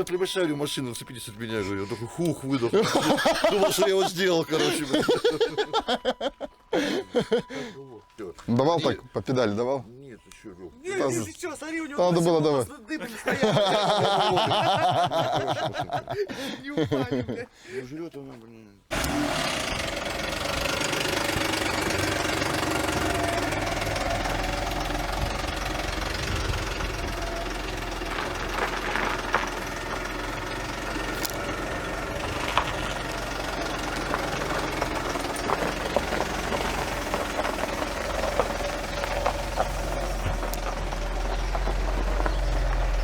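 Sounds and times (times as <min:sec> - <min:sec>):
car engine idling with knocking: 0:18.9 - 0:43.0.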